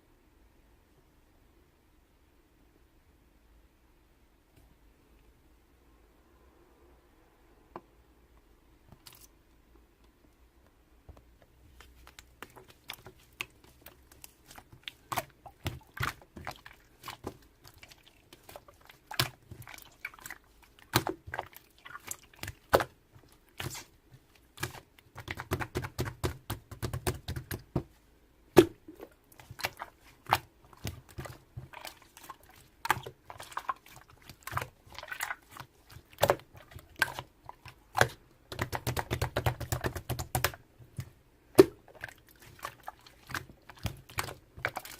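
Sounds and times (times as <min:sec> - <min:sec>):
slime squished by hand: 0:11.7 - 0:27.8, 0:28.5 - 0:44.9.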